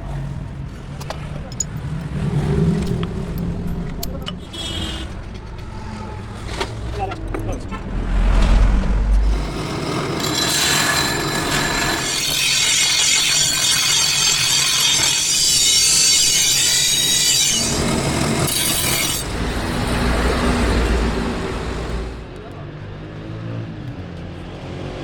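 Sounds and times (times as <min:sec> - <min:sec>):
steel grinding on abrasive wheel: 0:09.1 - 0:22.2.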